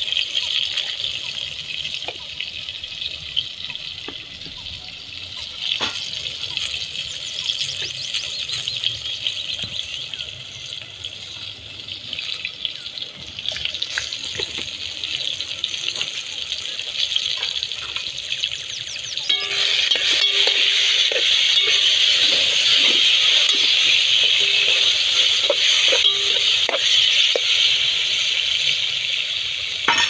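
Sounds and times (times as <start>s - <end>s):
small birds chirping: 5.6s - 10.9s, 18.2s - 27.6s
water running: 19.3s - 30.0s.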